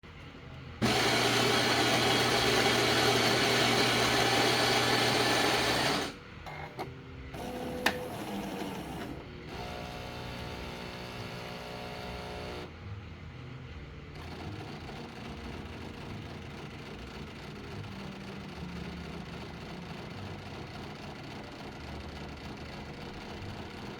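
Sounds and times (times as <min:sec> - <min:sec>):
motor whirring: 0:00.8 - 0:12.7
coffee machine running: 0:00.8 - 0:12.8, 0:14.1 - 0:23.9.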